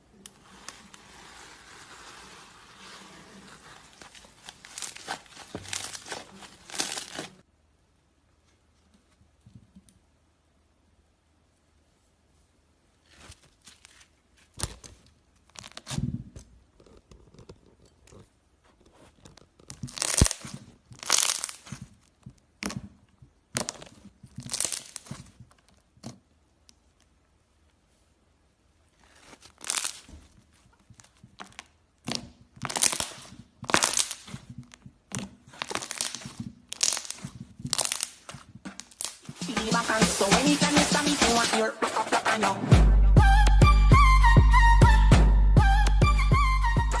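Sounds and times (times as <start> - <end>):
slime crackling and tearing: 0.2 - 7.4, 13.0 - 16.0, 19.2 - 22.8, 23.4 - 26.1, 28.8 - 39.4.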